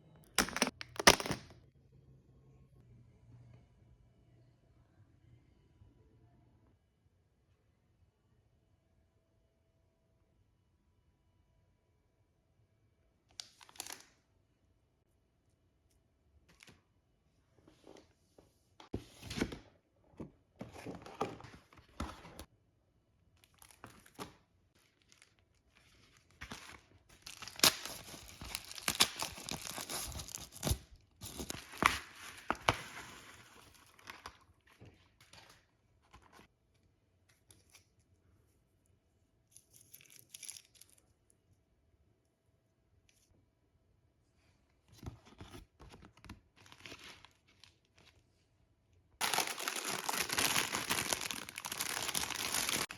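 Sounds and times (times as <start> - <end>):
packaging tearing and crinkling: 27.2 - 32.4, 49.2 - 52.9.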